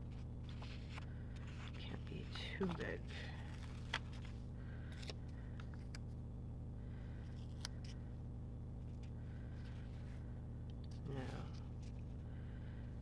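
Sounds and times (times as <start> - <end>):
paper pages rustling: 0.0 - 6.0
steady low hum: 0.0 - 13.0.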